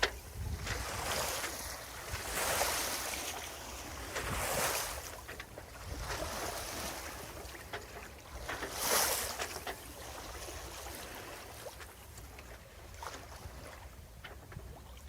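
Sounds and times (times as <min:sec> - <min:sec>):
wind buffeting microphone: 0:00.0 - 0:07.1
water rushing along hull: 0:00.0 - 0:15.0.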